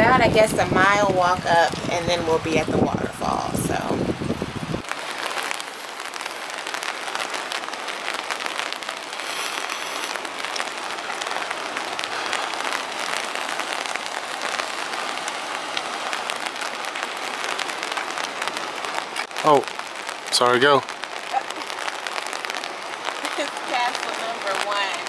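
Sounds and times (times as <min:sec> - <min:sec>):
rain falling: 0:00.0 - 0:25.0
raindrops ticking close by: 0:00.0 - 0:25.0.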